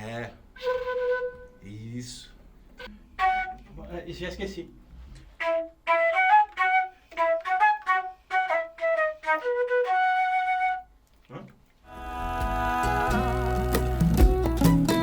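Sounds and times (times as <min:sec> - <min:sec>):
flute melody: 0:00.6 - 0:01.6, 0:02.8 - 0:03.8, 0:05.3 - 0:11.0.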